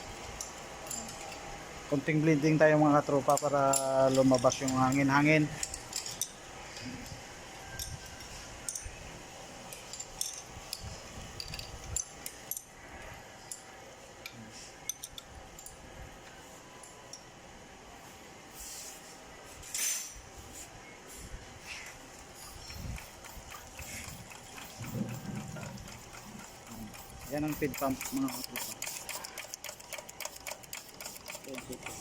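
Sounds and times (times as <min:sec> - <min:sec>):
metallic clicks and clinks: 0:03.2 - 0:06.4, 0:09.7 - 0:12.7, 0:22.4 - 0:32.0.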